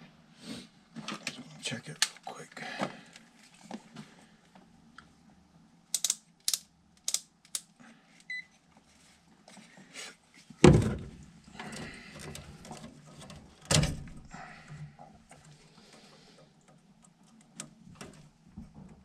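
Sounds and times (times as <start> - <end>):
tools clicking and rattling: 5.9 - 7.7.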